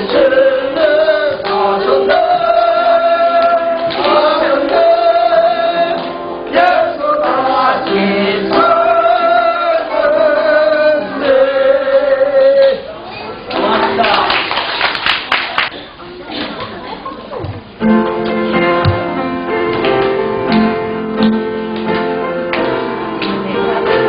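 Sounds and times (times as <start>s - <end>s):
voices singing a praise song: 0.0s - 12.8s.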